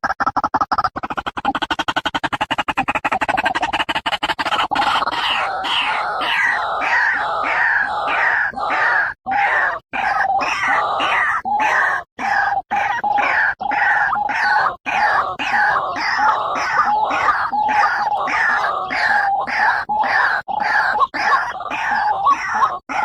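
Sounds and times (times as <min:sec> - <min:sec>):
waterhen croaking calls: 0:00.0 - 0:23.0.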